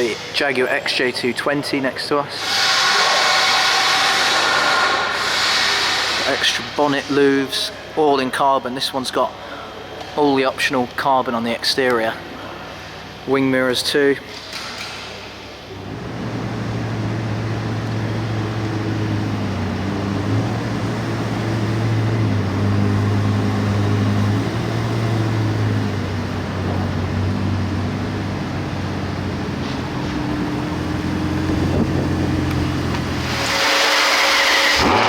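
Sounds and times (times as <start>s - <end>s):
car engine idling: 15.8s - 33.8s.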